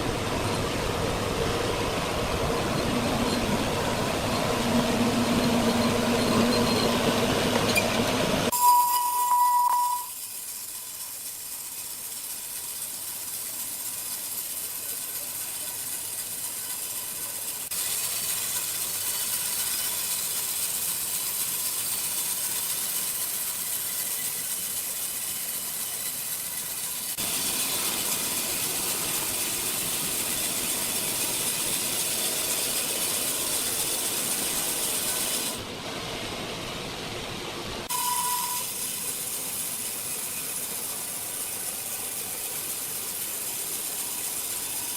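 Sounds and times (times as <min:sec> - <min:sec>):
sawmill machinery running: 0:00.0 - 0:08.5, 0:10.2 - 0:44.9
short high beep: 0:08.5 - 0:10.2, 0:37.9 - 0:38.7.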